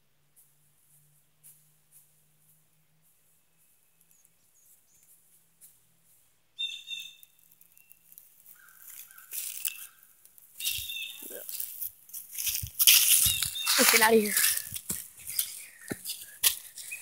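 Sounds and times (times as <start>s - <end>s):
sharp high bird call: 6.6s - 7.2s
noisy scuffle: 10.7s - 17.0s.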